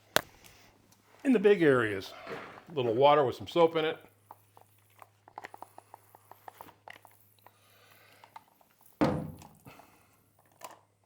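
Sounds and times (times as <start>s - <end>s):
loud thunk: 9.0s - 9.6s.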